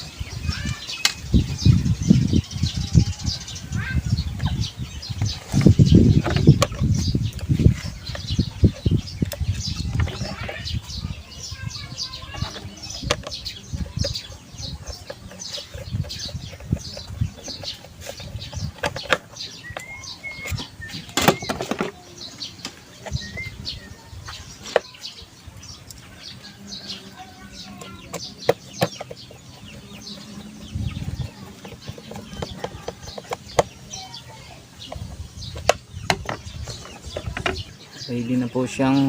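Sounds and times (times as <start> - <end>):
small birds chirping: 0.0 - 39.0
whistled bird call: 19.6 - 21.7.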